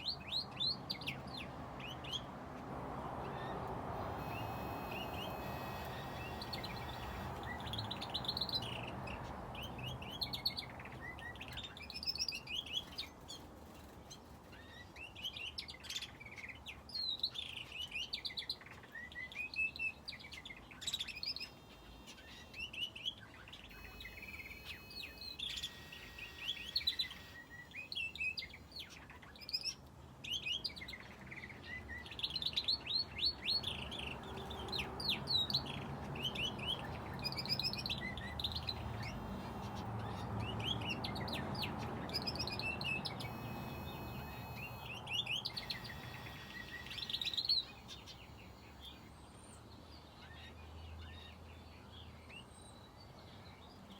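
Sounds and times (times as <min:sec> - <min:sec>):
finches and canary chirping: 0:00.0 - 0:02.3, 0:03.2 - 0:49.5.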